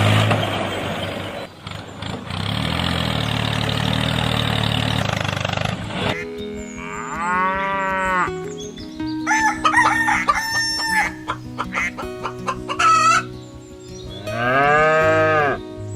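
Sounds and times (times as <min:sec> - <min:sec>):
cow mooing: 0:06.2 - 0:08.4, 0:14.2 - 0:15.6
rooster crowing: 0:09.2 - 0:11.4
hens clucking: 0:09.3 - 0:13.3.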